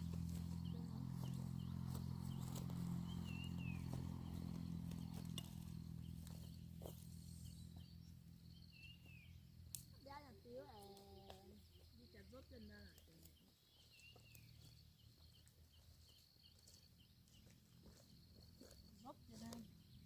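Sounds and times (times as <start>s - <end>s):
low steady rumble: 0.0s - 10.6s.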